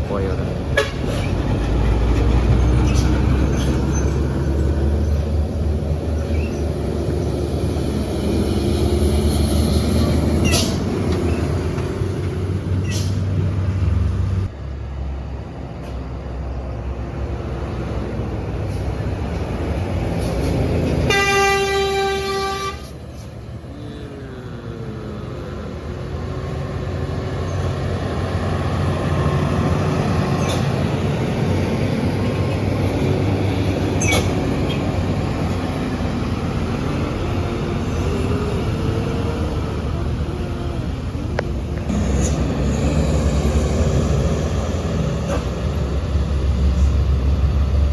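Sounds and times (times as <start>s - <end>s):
truck engines rumbling: 0.0s - 47.9s
truck horn blast: 21.1s - 23.0s.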